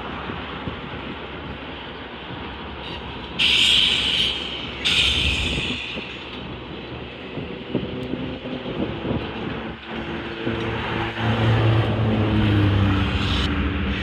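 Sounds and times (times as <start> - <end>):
freight train rumbling: 0.0 - 14.0
loud high-pitched screeches: 2.9 - 6.2.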